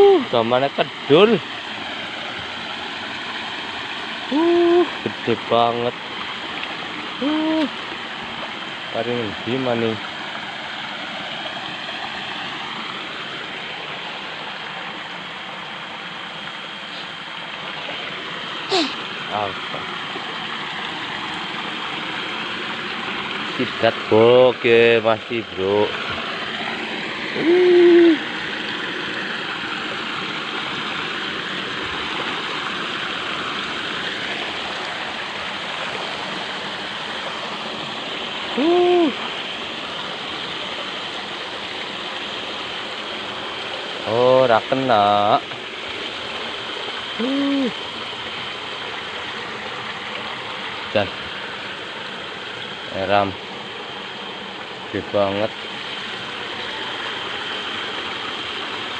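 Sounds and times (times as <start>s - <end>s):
stream water flowing: 0.0s - 58.9s
pitched hooting call: 4.3s - 4.9s, 27.4s - 28.3s.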